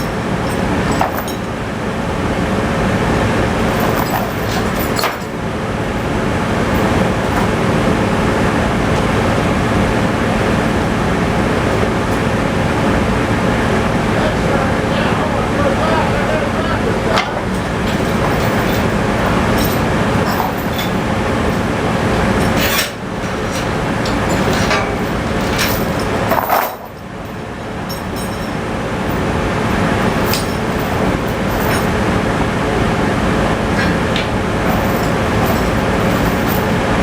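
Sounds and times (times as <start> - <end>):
tractor engine running: 0.0 - 37.0
sharp metallic clinks: 17.2 - 21.8.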